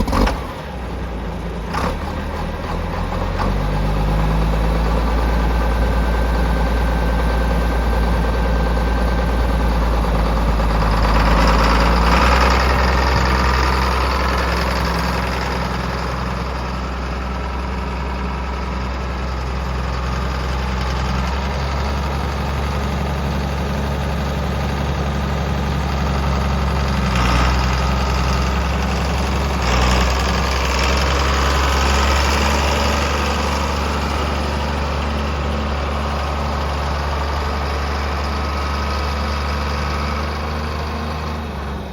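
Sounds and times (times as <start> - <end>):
tractor diesel engine idling: 0.0 - 41.9.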